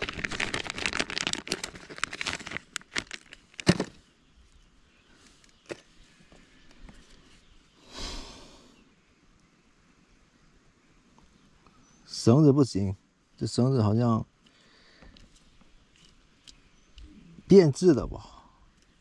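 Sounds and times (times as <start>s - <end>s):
plastic crinkling and clicking: 0.0s - 4.0s
rustling: 0.0s - 7.6s.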